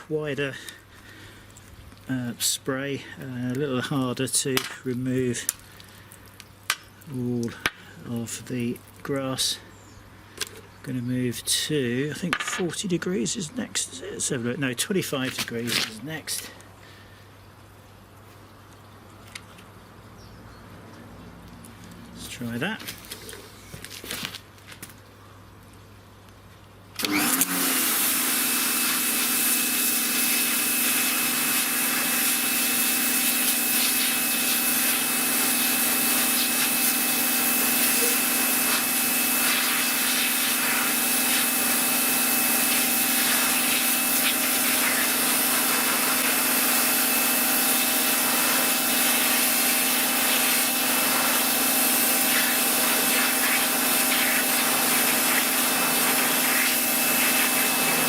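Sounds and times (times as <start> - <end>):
pressure washer motor humming: 27.0 - 58.0
water jet hissing: 27.0 - 58.0.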